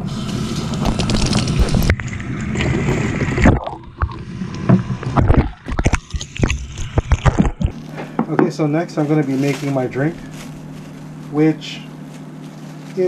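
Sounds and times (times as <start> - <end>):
vacuum cleaner running: 0.0 - 3.6, 7.7 - 13.0.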